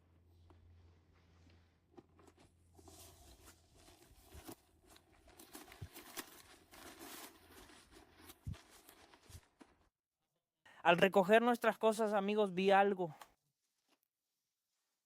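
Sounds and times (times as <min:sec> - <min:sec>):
faint rustling and crinkling: 0:00.0 - 0:09.9.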